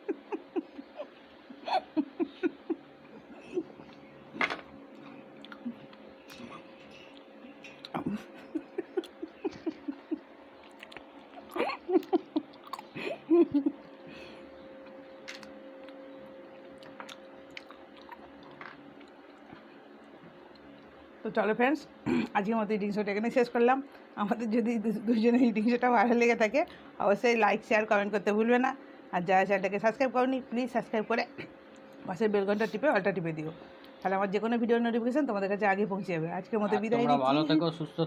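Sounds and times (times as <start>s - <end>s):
people chewing food: 0.0s - 21.2s
faint steady hum: 0.0s - 38.0s.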